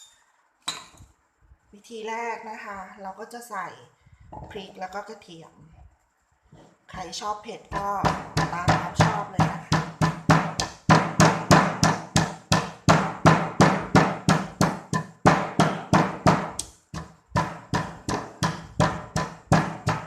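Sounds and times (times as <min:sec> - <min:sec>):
pestle pounding in mortar: 0:07.7 - 0:20.0.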